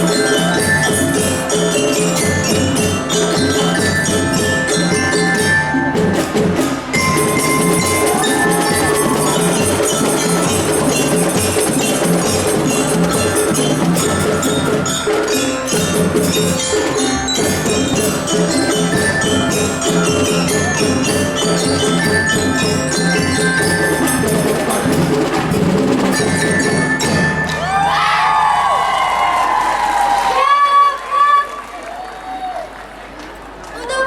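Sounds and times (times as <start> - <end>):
ringing bell-like melodic tones: 0.0 - 28.5
marching drums beating: 0.0 - 28.8.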